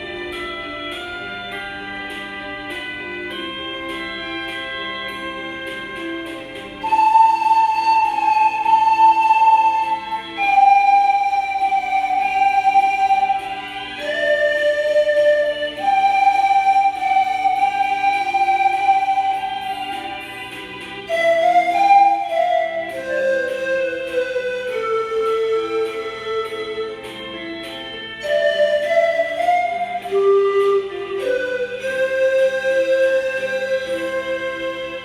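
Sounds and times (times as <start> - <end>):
pan flute melody: 0.0 - 35.0.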